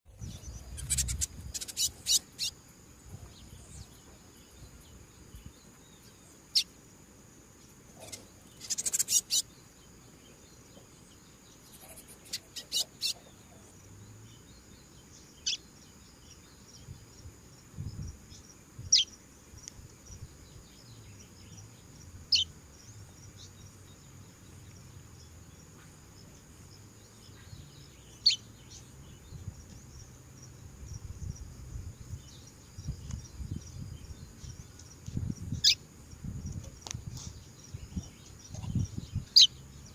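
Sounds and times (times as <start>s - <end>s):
high buzz of insects: 0.1s - 39.9s
bird giving sharp calls: 0.7s - 2.5s, 8.0s - 9.5s.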